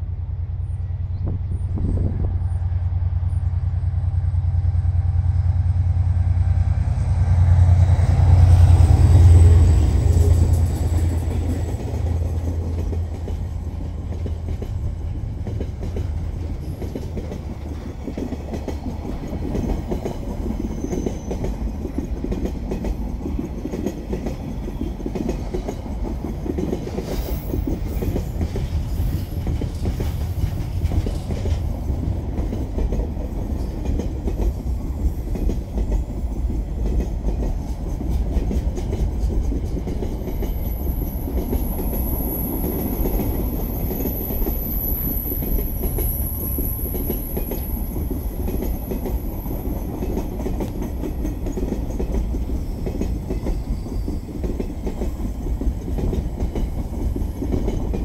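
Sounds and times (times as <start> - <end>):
train wheels rumbling on rails: 0.0 - 58.0
clickety-clack over rail joints: 5.9 - 58.0
wheel squeal: 20.6 - 21.4.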